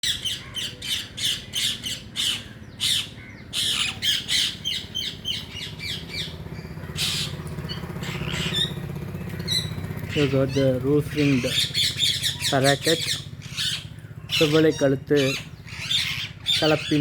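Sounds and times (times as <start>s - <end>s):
parakeets squawking: 0.0s - 17.0s.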